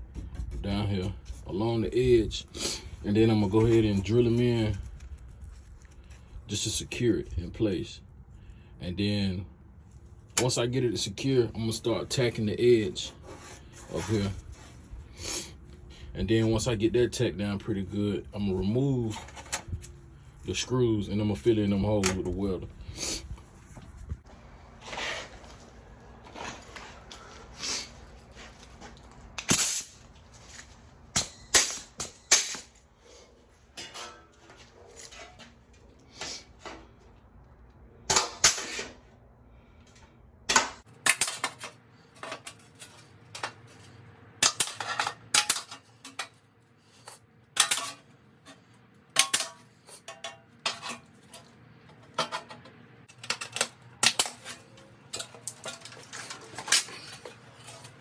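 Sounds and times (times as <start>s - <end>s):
sharp metallic clanks and clicks: 31.1s - 32.8s, 44.4s - 46.4s, 47.6s - 48.1s, 49.1s - 58.0s
tools striking sheet metal: 31.1s - 32.8s, 38.1s - 39.0s, 40.5s - 43.6s, 44.4s - 46.4s, 49.2s - 51.1s.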